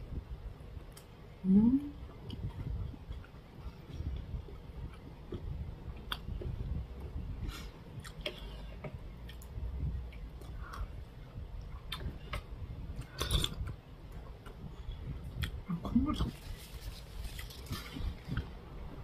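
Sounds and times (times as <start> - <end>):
person chewing food: 2.2 - 15.6.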